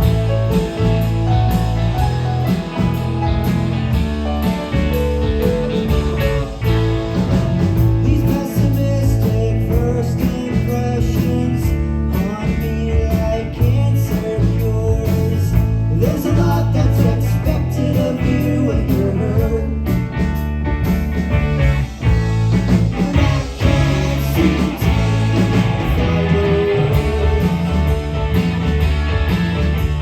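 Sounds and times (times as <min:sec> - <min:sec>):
live rock band playing: 0:00.0 - 0:30.0.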